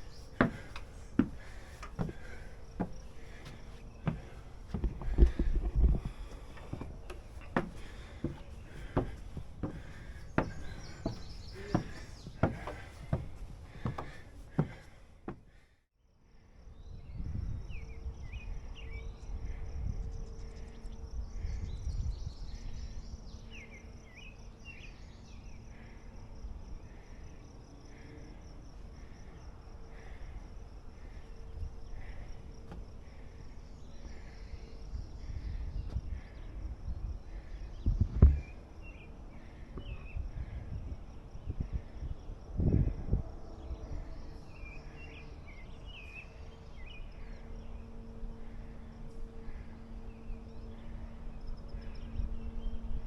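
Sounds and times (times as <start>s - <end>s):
wind rumble: 0.0s - 15.1s, 30.8s - 44.8s
footsteps: 0.0s - 15.6s
insects chirping: 0.0s - 15.6s, 16.3s - 53.0s
bird calls: 0.0s - 15.7s.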